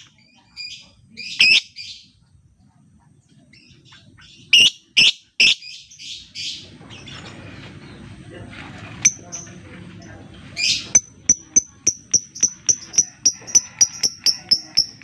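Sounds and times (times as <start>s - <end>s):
bird chirps: 3.3s - 8.1s, 10.6s - 15.0s.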